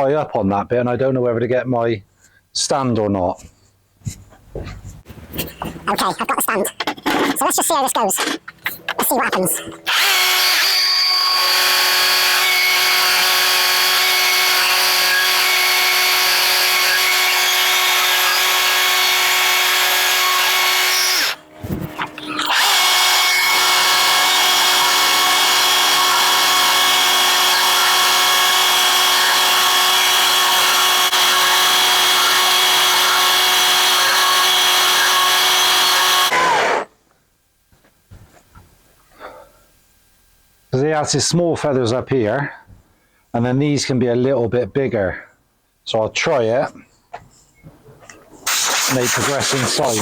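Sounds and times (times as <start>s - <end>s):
rotary carving tool whining: 8.2s - 36.9s, 48.4s - 50.0s.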